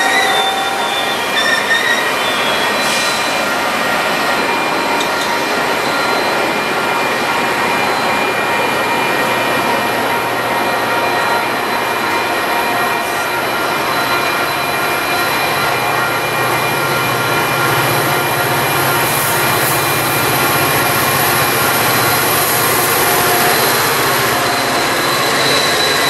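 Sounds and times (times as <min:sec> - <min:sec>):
train wheel and rail rush: 0:00.0 - 0:26.0
faint wheel squeal: 0:22.9 - 0:26.0.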